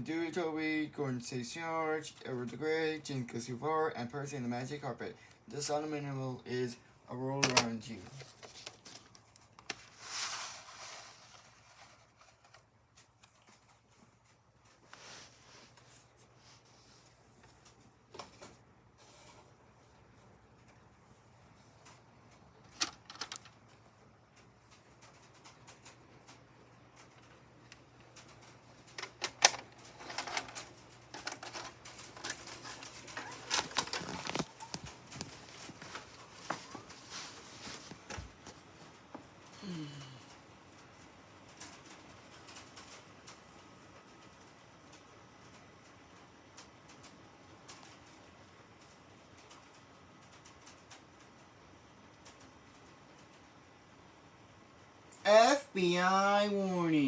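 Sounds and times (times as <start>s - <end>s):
steady low hum: 0.0s - 57.0s
soft rustle: 7.9s - 18.4s, 29.9s - 39.4s.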